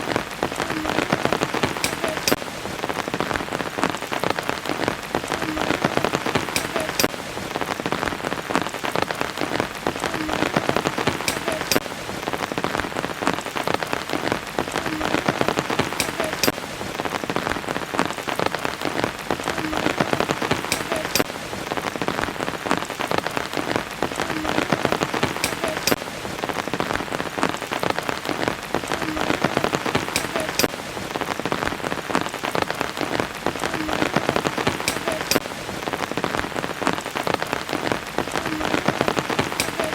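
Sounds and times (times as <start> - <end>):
sharp water drips: 0.0 - 17.4, 19.4 - 22.1, 24.0 - 26.8, 27.5 - 31.5, 33.9 - 36.1, 38.6 - 39.9
rain pattering: 0.0 - 39.9.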